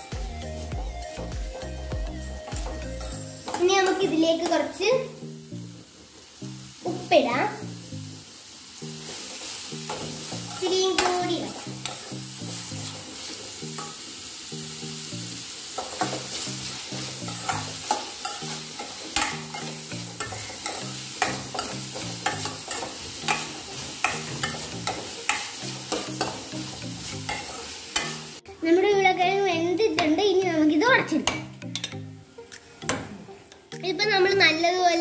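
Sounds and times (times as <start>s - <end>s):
vegetables sizzling in hot oil: 0.0s - 35.0s
steel spoon scraping pan: 9.0s - 14.0s, 15.8s - 28.3s.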